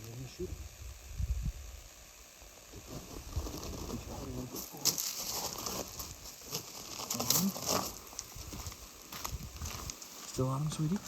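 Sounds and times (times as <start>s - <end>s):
sharp crinkling scrapes: 2.8s - 10.6s.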